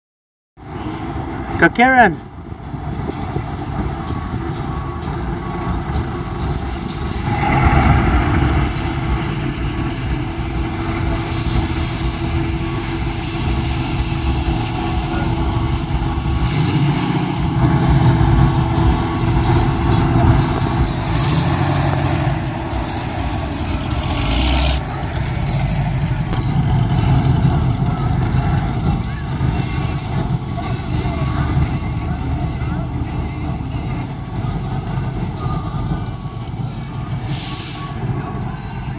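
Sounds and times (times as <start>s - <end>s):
car engine running: 0.7s - 38.9s
hiss: 37.3s - 38.1s.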